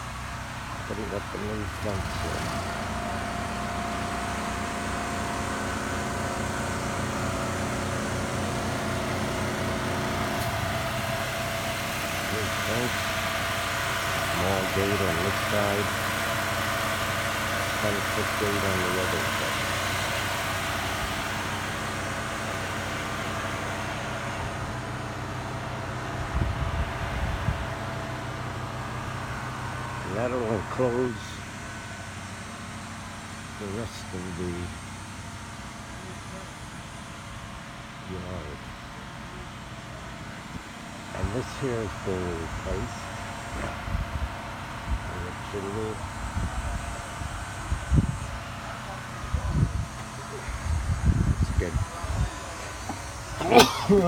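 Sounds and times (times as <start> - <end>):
engine idling: 0.0 - 54.0
faint steady whine: 0.0 - 54.0
mechanical hum with low tones: 20.8 - 54.0.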